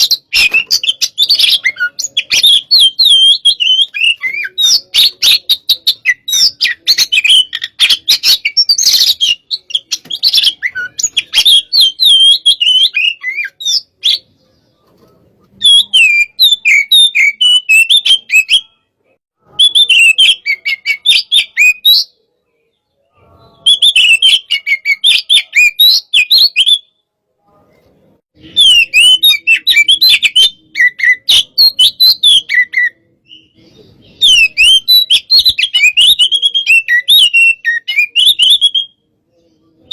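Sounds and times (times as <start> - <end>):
bird singing whistles and chirps: 0.0 - 14.9, 15.5 - 27.0, 28.4 - 39.9.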